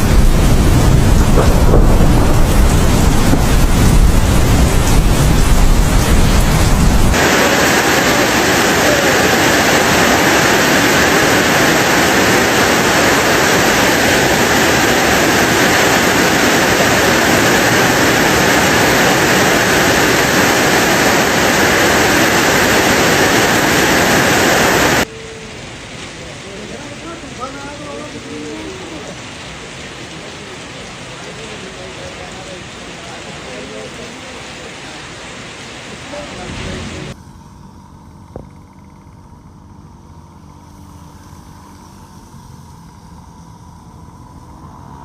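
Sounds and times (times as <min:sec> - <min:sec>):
low rumbling wind-like noise: 0:00.0 - 0:26.4
heavy rain pouring: 0:00.0 - 0:37.2.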